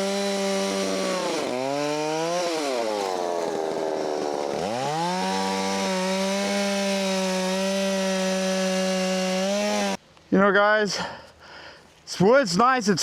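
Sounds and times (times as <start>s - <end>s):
chainsaw at full throttle: 0.0s - 10.0s.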